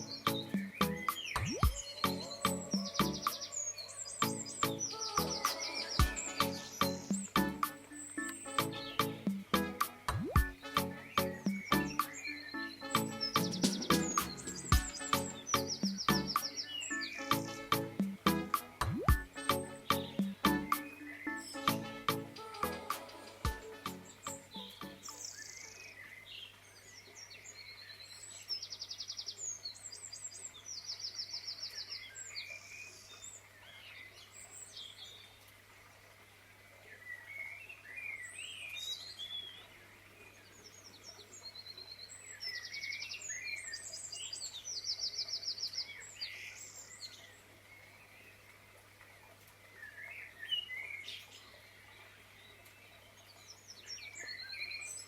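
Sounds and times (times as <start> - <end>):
birds chirping and singing: 0.0 - 33.0.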